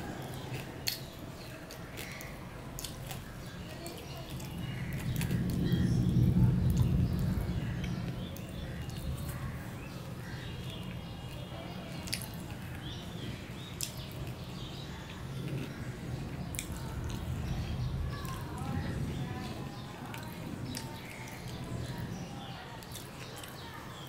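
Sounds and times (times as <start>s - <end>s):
person chewing: 0.2s - 5.5s.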